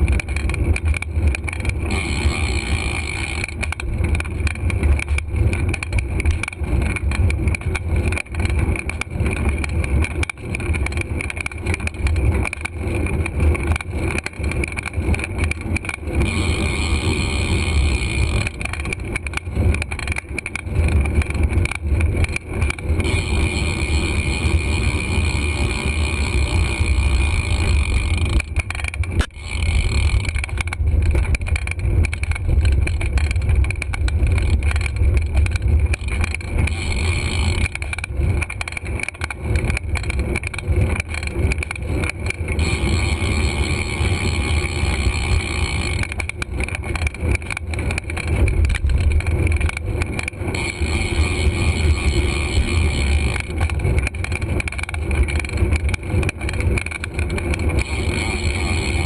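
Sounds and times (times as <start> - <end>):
bicycle rattles and knocks: 0.0 - 59.0.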